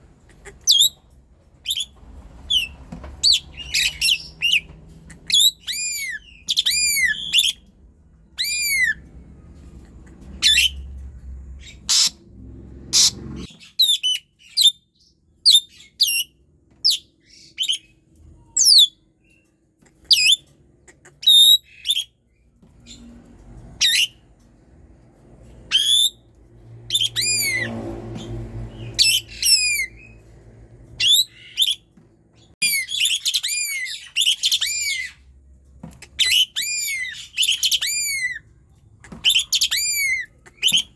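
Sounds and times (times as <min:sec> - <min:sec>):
starling whistles and harsh calls: 0:00.6 - 0:01.0, 0:01.6 - 0:01.9, 0:02.5 - 0:07.6, 0:08.4 - 0:09.0, 0:10.4 - 0:10.8, 0:11.6 - 0:12.2, 0:12.9 - 0:14.8, 0:21.2 - 0:22.2, 0:23.8 - 0:24.2, 0:25.7 - 0:26.2, 0:26.9 - 0:27.8, 0:28.8 - 0:30.2, 0:31.0 - 0:31.9, 0:32.6 - 0:35.2, 0:36.1 - 0:38.4, 0:39.0 - 0:40.9.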